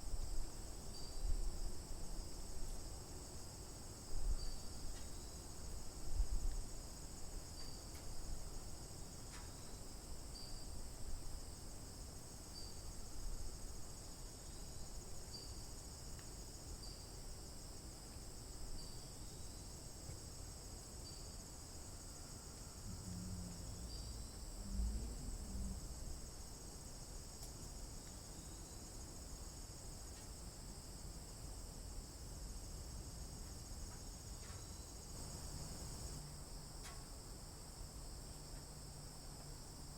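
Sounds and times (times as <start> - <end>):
insects trilling: 6.9 - 39.8.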